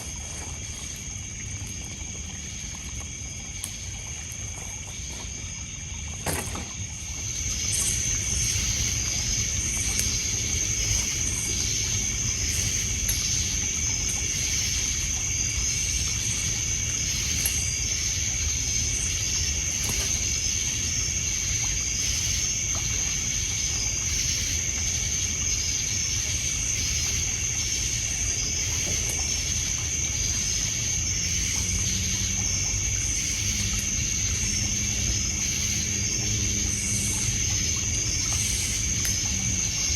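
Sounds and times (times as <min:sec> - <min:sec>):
crickets trilling: 0:00.0 - 0:39.9
low steady hum: 0:00.0 - 0:39.9
water lapping on pebbles: 0:00.0 - 0:39.9.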